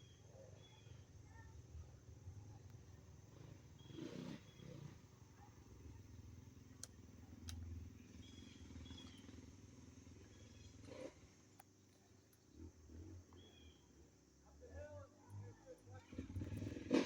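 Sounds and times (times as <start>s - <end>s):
distant dirt bike engines: 0.0s - 17.0s.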